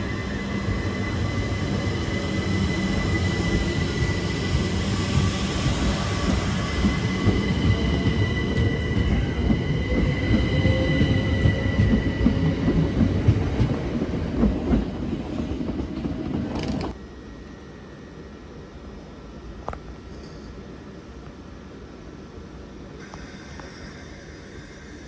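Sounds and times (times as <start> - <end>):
train rumbling past: 0.0 - 20.0.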